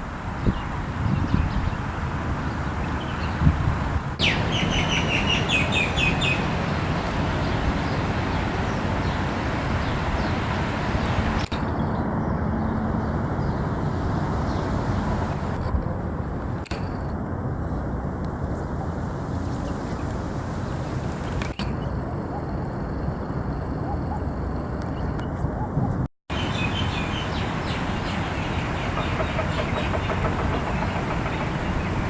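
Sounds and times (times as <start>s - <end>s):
distant traffic: 0.0s - 32.0s
wind: 0.0s - 32.0s
small birds chirping: 4.2s - 15.8s, 19.3s - 32.0s.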